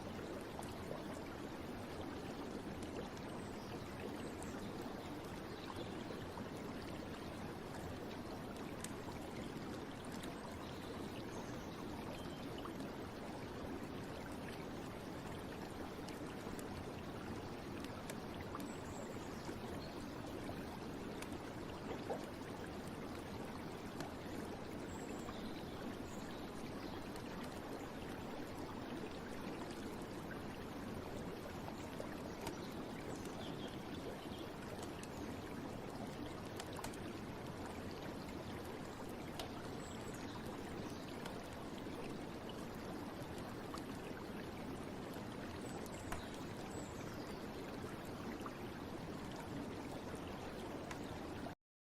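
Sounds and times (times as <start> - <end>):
stream water running: 0.0 - 51.6
faint ticks: 6.3 - 10.7, 14.0 - 48.5, 49.3 - 51.5.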